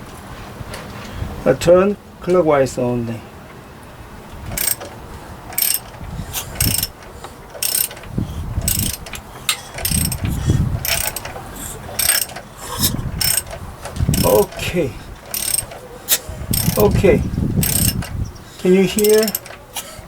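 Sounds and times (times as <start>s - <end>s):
ratchet wrench clicking: 4.5s - 4.9s, 5.5s - 14.6s, 15.3s - 17.0s, 17.6s - 20.0s.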